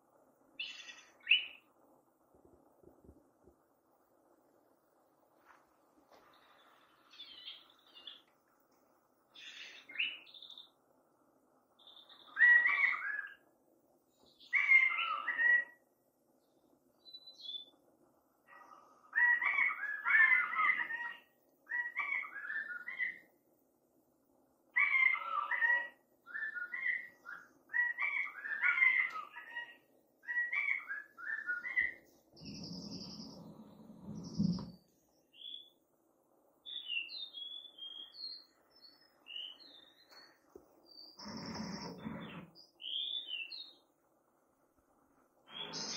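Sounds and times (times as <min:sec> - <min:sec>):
songbird singing: 0:00.5 - 0:01.7, 0:06.3 - 0:08.4, 0:09.3 - 0:10.8, 0:11.7 - 0:13.5, 0:14.1 - 0:17.8, 0:18.5 - 0:23.3, 0:24.7 - 0:35.8, 0:36.6 - 0:44.0, 0:45.4 - 0:45.9.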